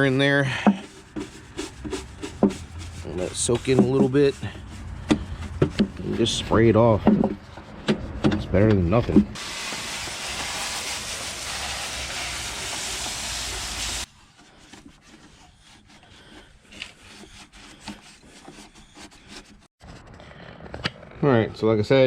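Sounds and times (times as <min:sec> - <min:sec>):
water spray hissing: 0:09.4 - 0:14.1.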